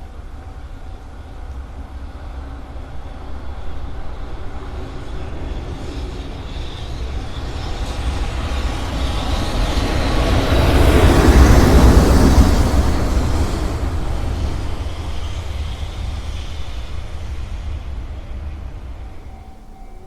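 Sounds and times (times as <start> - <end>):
train rumbling on rails: 0.0 - 20.0.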